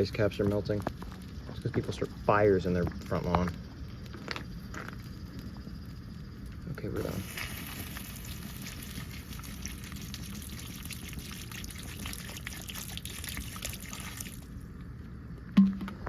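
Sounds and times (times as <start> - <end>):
crackles: 0.0 - 16.0
water pouring and hissing: 7.0 - 14.6.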